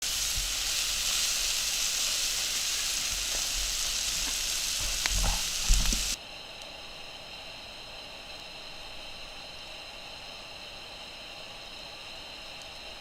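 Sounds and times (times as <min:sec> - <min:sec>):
fire crackles: 0:00.0 - 0:06.2
meat sizzling on a grill: 0:00.0 - 0:06.2.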